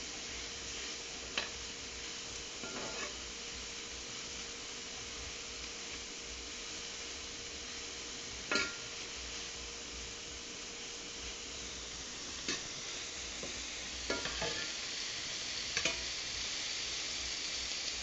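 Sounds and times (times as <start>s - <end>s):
spinach sizzling in a frying pan: 0.0s - 18.0s
stirring scrape: 2.6s - 3.2s.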